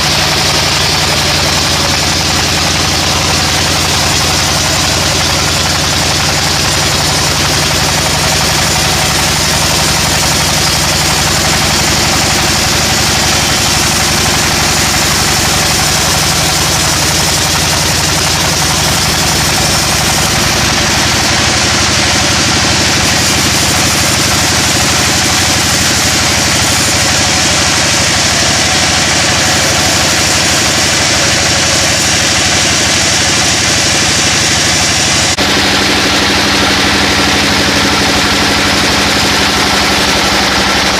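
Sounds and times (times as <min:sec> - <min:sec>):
engine hum: 0:00.0 - 0:40.9
sawmill machinery hiss: 0:00.0 - 0:40.9.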